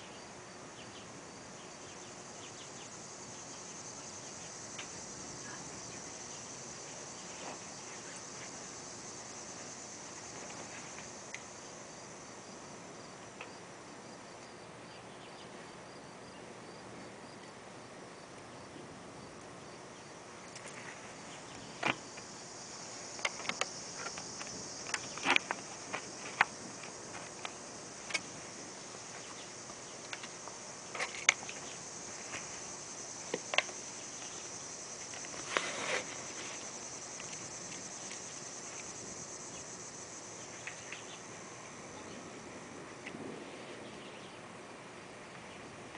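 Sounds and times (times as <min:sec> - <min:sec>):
insect chorus: 0:00.0 - 0:45.9
sharp ticks and pops: 0:04.8 - 0:05.0, 0:10.4 - 0:11.5, 0:22.9 - 0:28.4, 0:29.2 - 0:32.6, 0:33.2 - 0:34.4, 0:37.1 - 0:39.7, 0:40.6 - 0:41.2.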